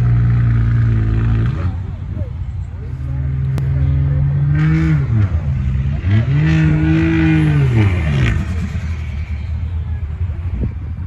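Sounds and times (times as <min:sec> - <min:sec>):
diesel truck engine revving: 0:00.0 - 0:02.0, 0:03.0 - 0:09.6.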